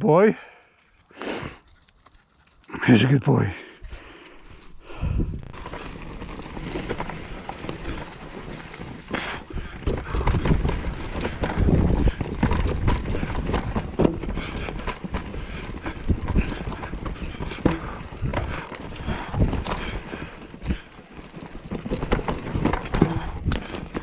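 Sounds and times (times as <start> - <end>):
wind buffeting microphone: 4.8 - 20.9
tyre rumble: 5.0 - 24.0
bike knocks and rattles: 5.4 - 24.0.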